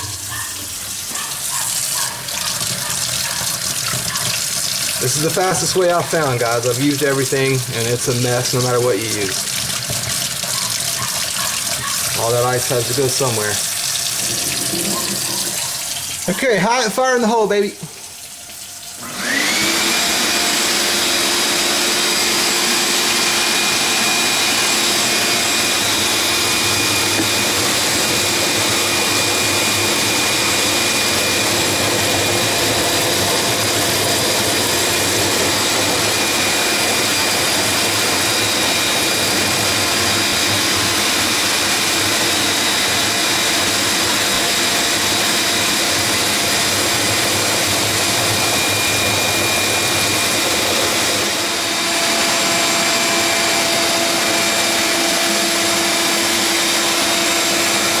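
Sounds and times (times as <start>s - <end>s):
shop vac whining: 0.0s - 18.0s, 19.0s - 58.0s.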